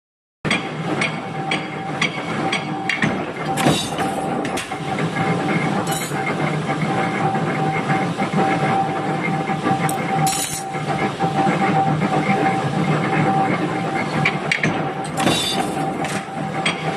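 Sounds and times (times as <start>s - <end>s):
power press humming and whining: 0.5s - 16.9s.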